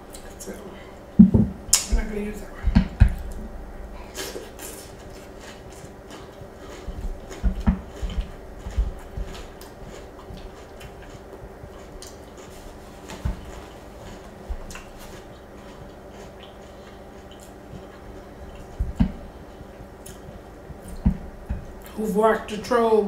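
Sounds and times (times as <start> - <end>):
dull low knocks: 1.2 - 4.0, 7.0 - 9.3
chewing crunchy cereal: 4.0 - 21.0.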